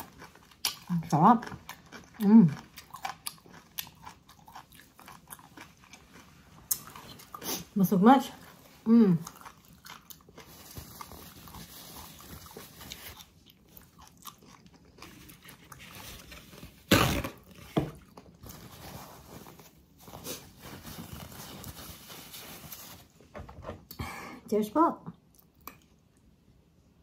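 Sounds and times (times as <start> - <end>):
person chewing: 0.0 - 7.8, 8.4 - 16.1.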